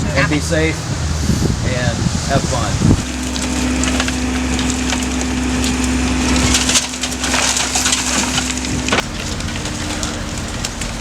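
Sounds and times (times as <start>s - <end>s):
heavy machine engine running: 0.0s - 11.0s
wood cracking and splintering: 2.3s - 11.0s.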